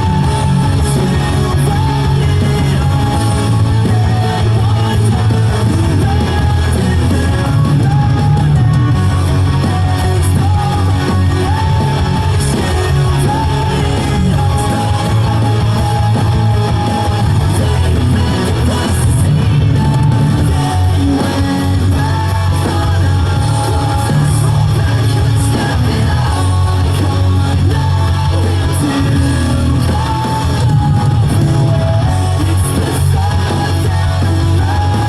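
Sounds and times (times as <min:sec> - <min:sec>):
rock song with singing and guitar: 0:00.0 - 0:35.0.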